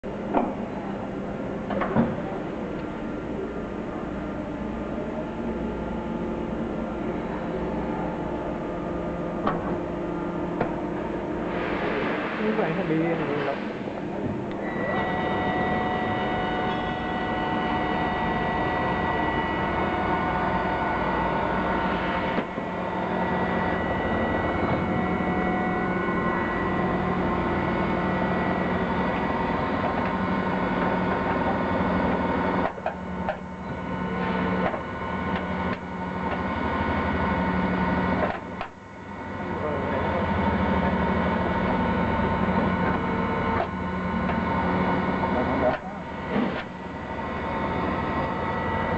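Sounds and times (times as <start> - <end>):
lathe mechanical whine: 10.0 - 48.9.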